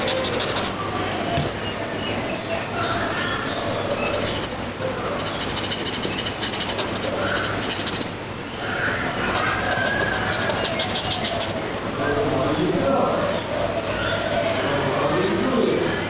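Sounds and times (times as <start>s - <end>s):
pencil scratching on paper: 0.0s - 0.8s, 3.9s - 8.1s, 9.2s - 11.6s, 13.1s - 16.0s.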